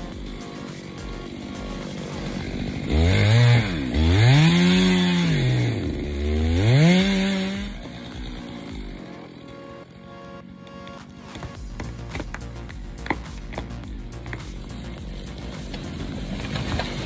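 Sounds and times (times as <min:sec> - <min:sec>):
chainsaw engine revving: 0:00.0 - 0:09.9, 0:14.2 - 0:17.0.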